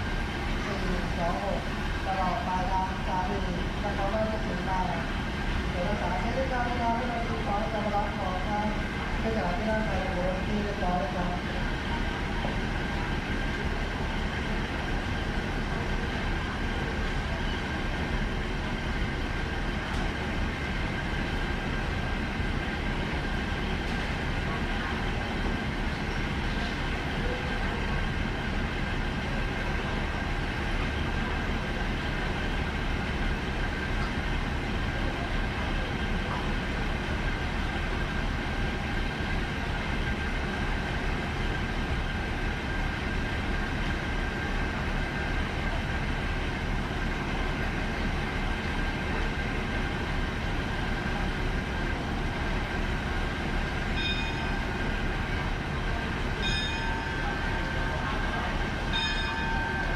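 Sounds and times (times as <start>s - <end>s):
train low rumble: 0.0s - 59.9s
constant high tone: 51.1s - 59.9s
short high tones: 54.0s - 54.6s, 56.4s - 58.0s.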